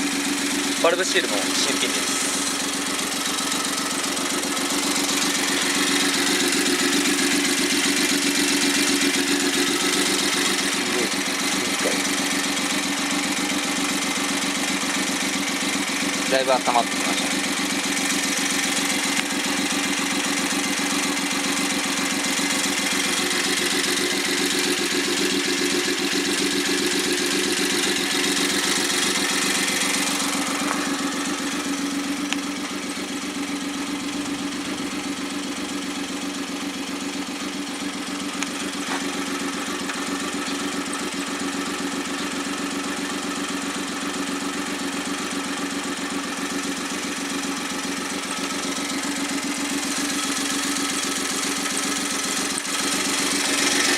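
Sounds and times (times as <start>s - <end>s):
engine idling: 0.0s - 53.9s.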